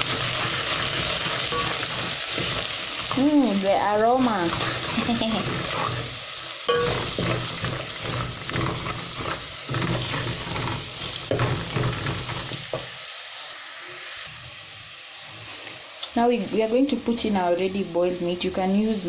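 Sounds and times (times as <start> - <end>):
wooden spoon scraping a pot: 0.0 - 12.8
food sizzling in hot oil: 0.0 - 19.0.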